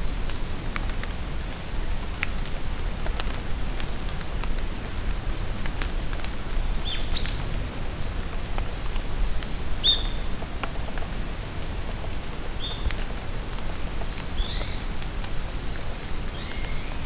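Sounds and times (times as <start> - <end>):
rain falling in a forest: 0.0 - 17.0
bird whistling calls: 9.8 - 10.2.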